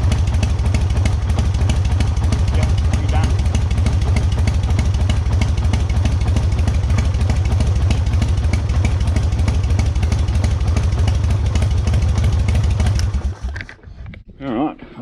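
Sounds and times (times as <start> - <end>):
motorcycle engine idling: 0.0 - 13.8.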